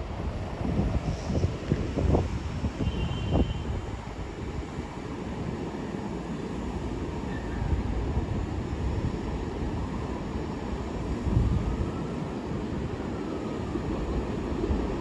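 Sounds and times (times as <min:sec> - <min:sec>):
train rumbling on tracks: 0:00.0 - 0:15.0.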